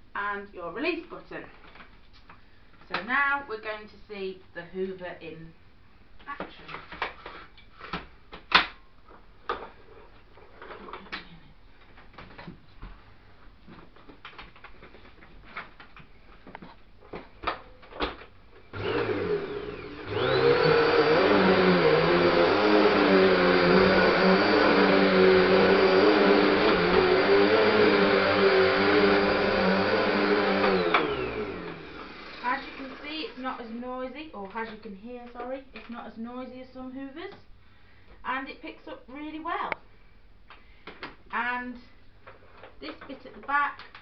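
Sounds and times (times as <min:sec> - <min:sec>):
vacuum cleaner motor whining: 0:18.7 - 0:33.4.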